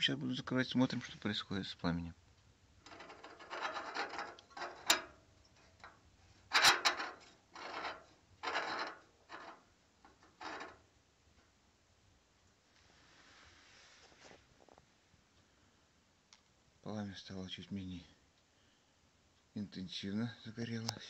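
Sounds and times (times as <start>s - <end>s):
stove damper slide scraping: 2.8s - 5.2s, 5.8s - 10.8s.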